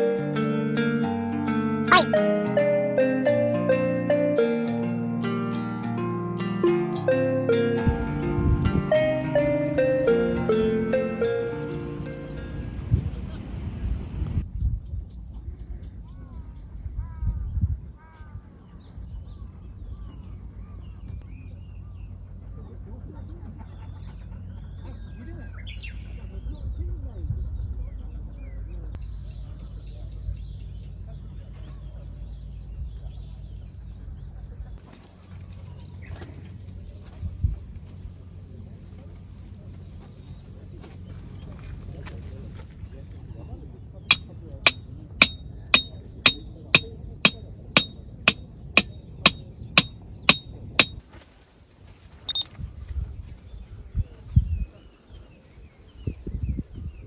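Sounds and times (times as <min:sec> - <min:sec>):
metal-on-metal strikes ringing: 0:44.1 - 0:51.0.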